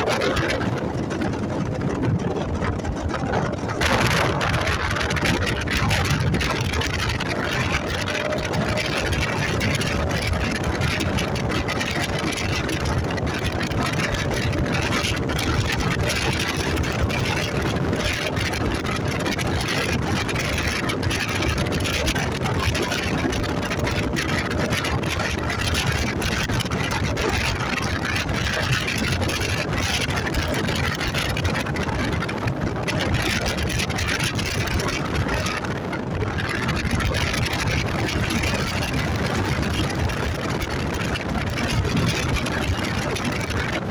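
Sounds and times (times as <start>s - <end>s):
rushing noise: 0.0s - 14.5s
motorcycle engine running: 0.0s - 35.6s.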